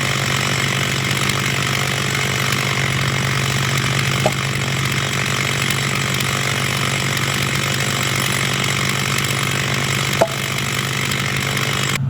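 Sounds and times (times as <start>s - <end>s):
chainsaw running at high speed: 0.0s - 12.0s.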